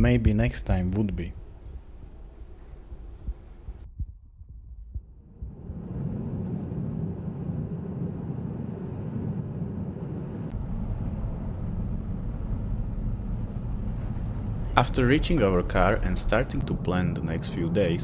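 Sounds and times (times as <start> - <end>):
car road and engine rumble: 5.4 - 18.0.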